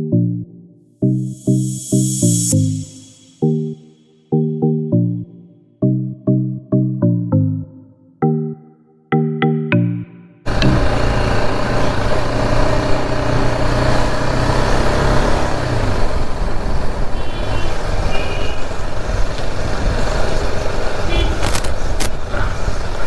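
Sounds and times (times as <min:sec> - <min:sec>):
motorcycle engine hum: 0:10.5 - 0:23.0.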